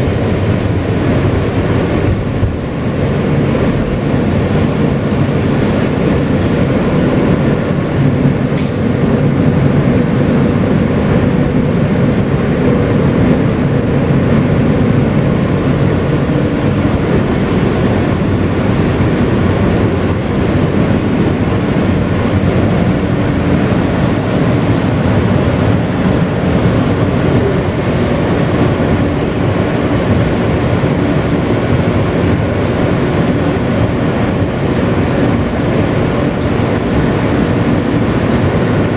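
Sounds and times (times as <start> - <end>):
subway wheels rumbling on rail: 0.0 - 38.9
sharp click: 8.6 - 8.9.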